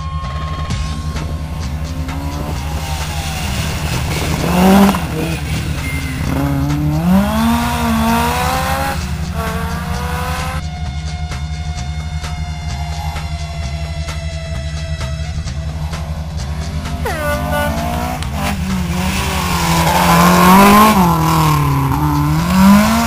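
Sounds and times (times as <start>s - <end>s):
rally car engine at high revs: 0.8s - 10.6s, 12.2s - 23.0s.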